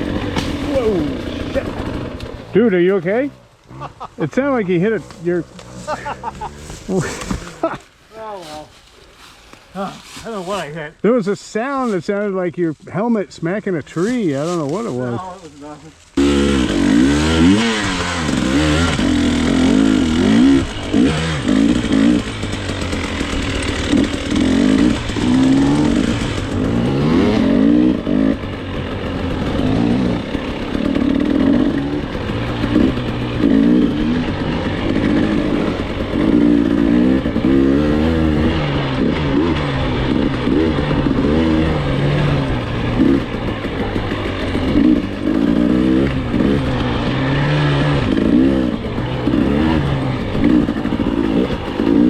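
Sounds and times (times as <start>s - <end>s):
dirt bike engine revving: 0.0s - 7.8s, 13.4s - 52.0s.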